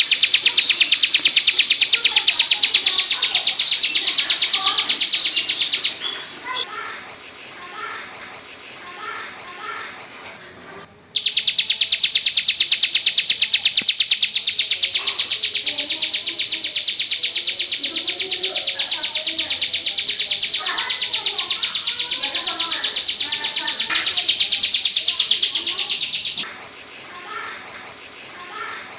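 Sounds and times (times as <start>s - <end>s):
bird rattling trill: 0.0s - 6.6s, 11.2s - 26.5s.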